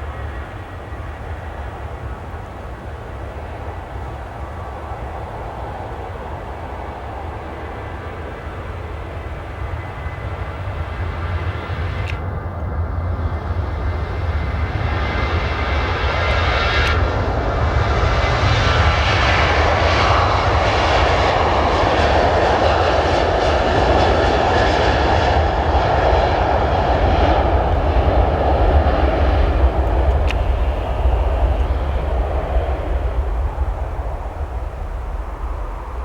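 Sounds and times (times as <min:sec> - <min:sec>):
jet engine roar: 0:00.0 - 0:36.0.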